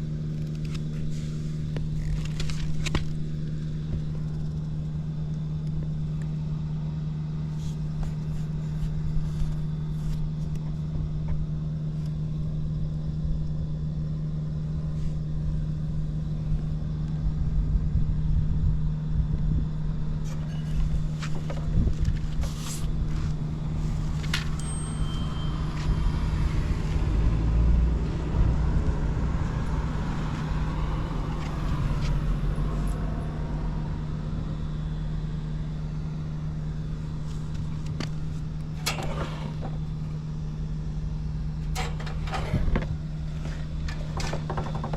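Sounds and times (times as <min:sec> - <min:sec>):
motorcycle engine running: 0:00.0 - 0:44.9
engine clicks: 0:41.6 - 0:44.9.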